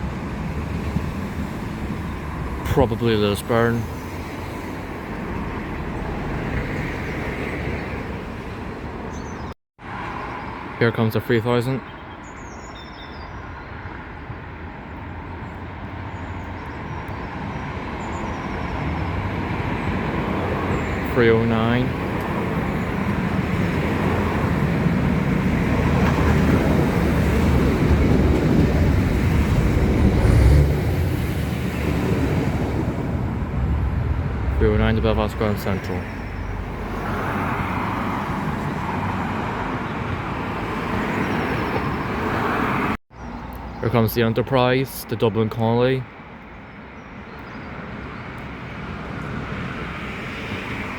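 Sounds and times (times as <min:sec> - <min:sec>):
diesel train rumble: 0:17.4 - 0:42.4.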